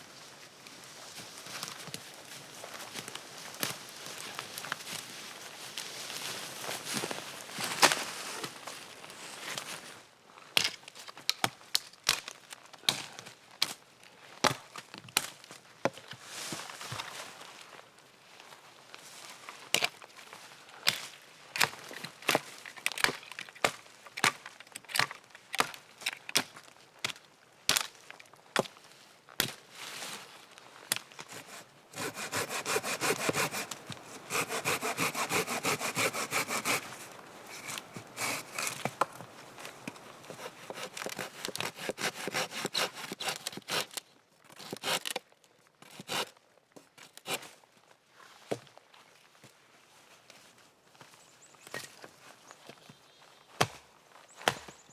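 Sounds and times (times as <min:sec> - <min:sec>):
hand saw cutting dry wood: 0:30.9 - 0:44.0, 0:44.6 - 0:45.2, 0:45.8 - 0:46.3, 0:47.0 - 0:47.5
sharp wooden knocks: 0:31.4 - 0:41.4.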